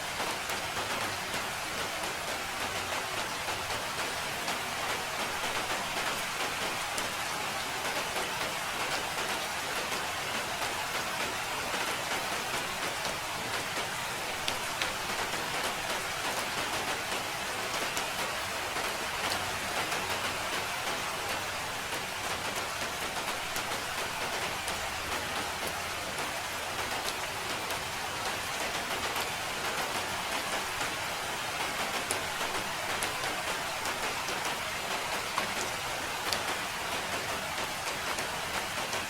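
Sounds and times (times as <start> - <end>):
rain pattering: 0.0 - 39.0.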